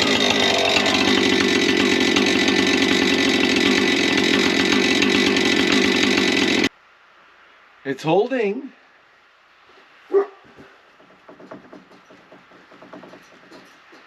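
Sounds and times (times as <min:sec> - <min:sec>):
chainsaw cutting wood: 0:00.0 - 0:06.7, 0:12.8 - 0:13.7.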